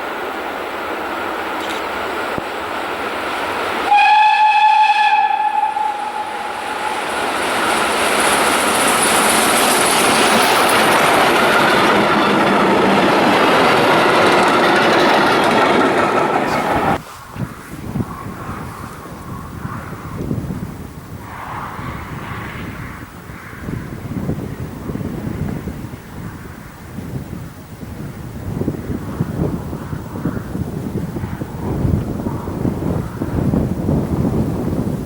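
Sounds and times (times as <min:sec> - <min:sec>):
train rushing past: 0:00.0 - 0:17.1
steam locomotive whistle: 0:03.9 - 0:07.8.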